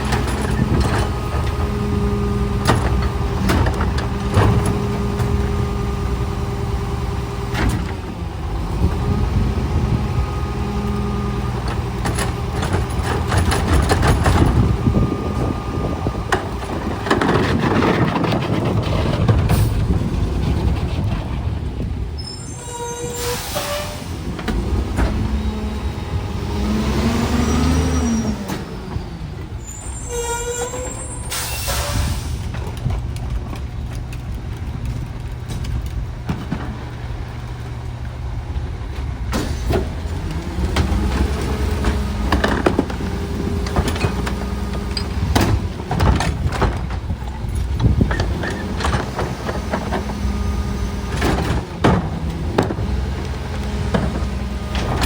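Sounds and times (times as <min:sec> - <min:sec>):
clanks and knocks: 0:00.0 - 0:05.4, 0:11.6 - 0:15.0, 0:40.7 - 0:50.2, 0:51.0 - 0:55.0
garbage truck running: 0:00.0 - 0:55.0
air brake hisses: 0:22.3 - 0:24.2, 0:29.7 - 0:32.5.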